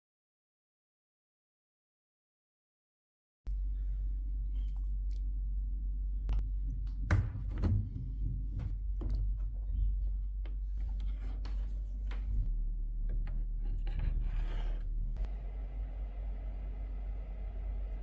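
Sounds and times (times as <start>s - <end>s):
steady low hum: 3.5s - 18.0s
scraping rub: 13.2s - 15.3s.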